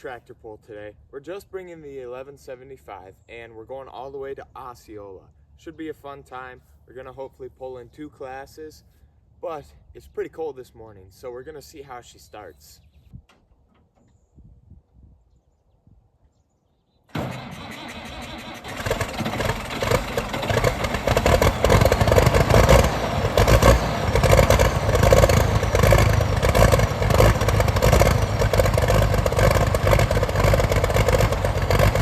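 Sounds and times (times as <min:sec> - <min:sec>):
tractor diesel engine starting: 0:17.1 - 0:32.0.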